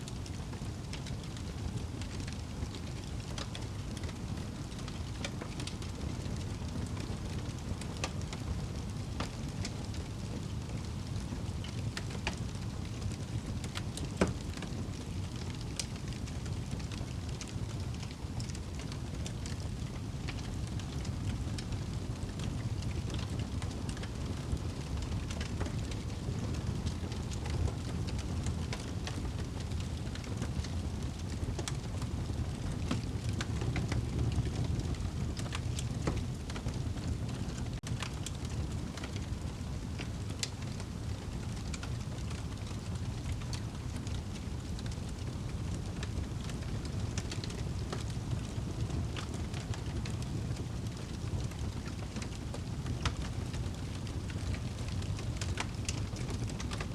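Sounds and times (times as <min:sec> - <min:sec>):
fire crackles and pops: 0:00.0 - 0:56.9
low rumble of fire: 0:00.0 - 0:56.9.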